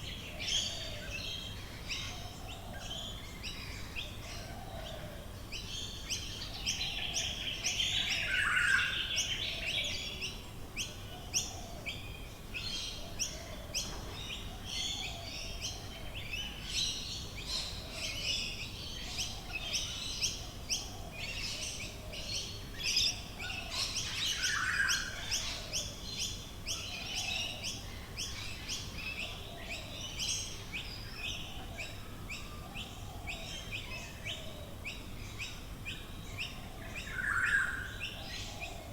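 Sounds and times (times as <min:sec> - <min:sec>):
birds chirping and trilling: 0:12.6 - 0:38.9.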